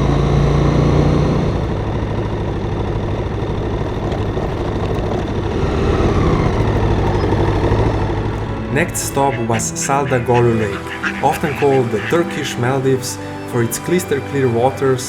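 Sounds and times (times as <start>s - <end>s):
motorcycle engine rumbling: 1.2s - 12.7s.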